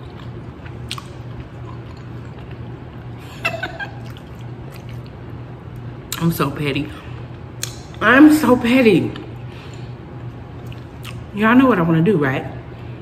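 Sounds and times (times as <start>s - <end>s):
chewing with wet mouth clicks: 0.0s - 3.2s, 3.8s - 6.3s, 7.3s - 8.0s, 9.1s - 11.3s
steady low hum: 0.0s - 13.0s.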